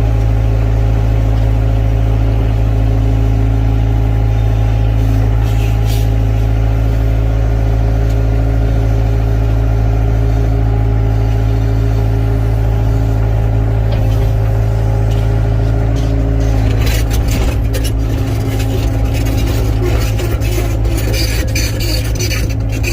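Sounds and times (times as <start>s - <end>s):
excavator diesel engine running: 0.0s - 22.9s
knocks and clatter: 13.8s - 22.9s.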